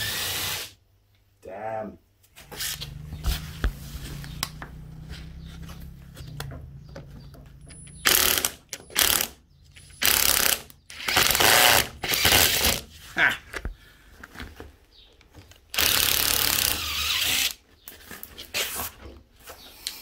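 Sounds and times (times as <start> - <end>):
cordless drill drilling metal: 0.0 - 0.8, 8.0 - 12.8, 15.7 - 17.6.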